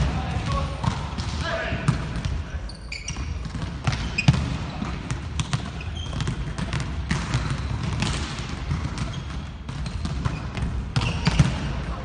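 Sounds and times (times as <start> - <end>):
volleyballs bouncing on hard floor: 3.1 - 12.0.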